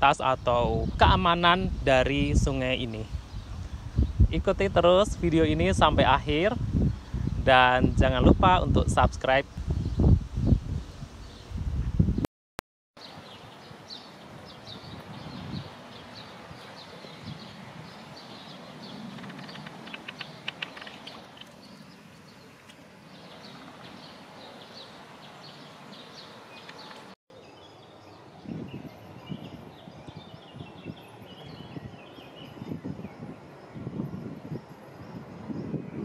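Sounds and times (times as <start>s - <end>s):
small birds chirping: 0.0s - 4.4s, 13.0s - 36.0s
steady outdoor hiss: 0.0s - 12.2s, 13.0s - 36.0s.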